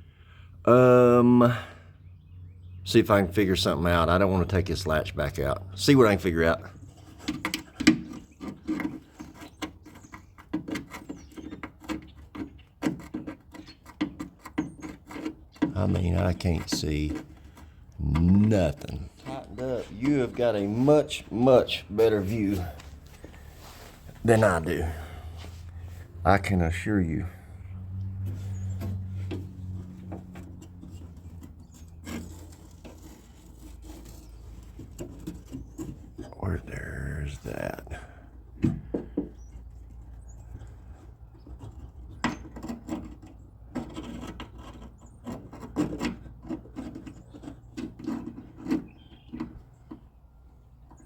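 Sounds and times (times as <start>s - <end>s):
tool scraping sheet metal: 6.1s - 26.6s, 28.2s - 36.3s, 41.4s - 49.6s.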